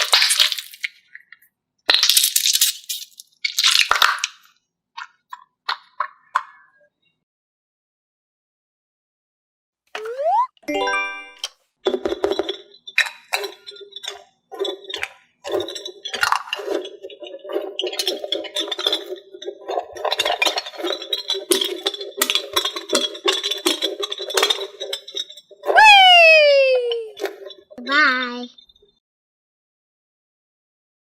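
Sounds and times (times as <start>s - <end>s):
small hard objects clinking: 0.0s - 6.2s, 11.9s - 28.9s.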